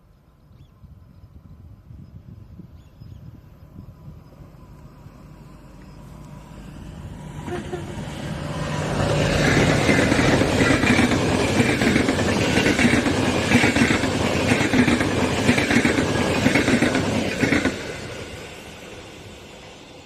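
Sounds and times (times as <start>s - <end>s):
train passing at speed: 0.0s - 20.0s
train wheels clattering: 9.0s - 18.8s.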